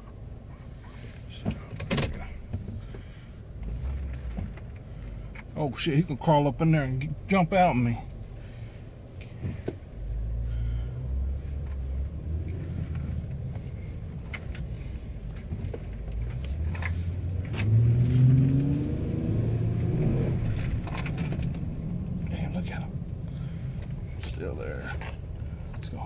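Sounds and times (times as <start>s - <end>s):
truck engine accelerating: 10.0s - 26.0s.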